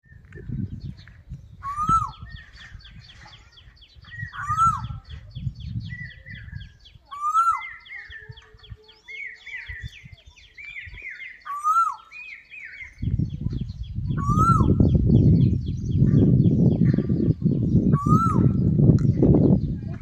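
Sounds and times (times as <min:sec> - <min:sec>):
bird whistle rising and falling: 0:01.6 - 0:02.6, 0:04.2 - 0:04.9, 0:10.7 - 0:13.0.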